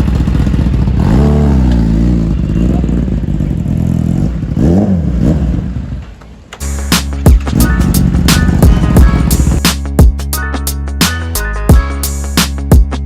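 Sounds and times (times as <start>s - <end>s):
motorcycle engine revving: 0.0s - 6.3s, 7.1s - 9.6s.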